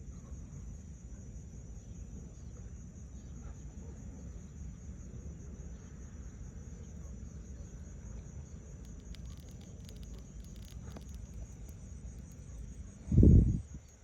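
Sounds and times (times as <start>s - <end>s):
faint ticks: 8.8s - 12.9s, 13.7s - 14.0s
high insect trilling: 8.8s - 13.0s, 13.6s - 14.0s.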